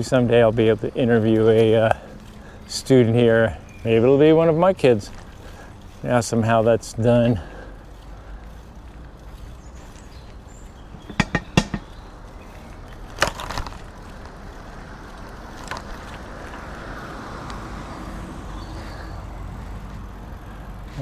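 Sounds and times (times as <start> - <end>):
wind and road noise: 0.0 - 21.0
clattering rattle: 11.0 - 12.0.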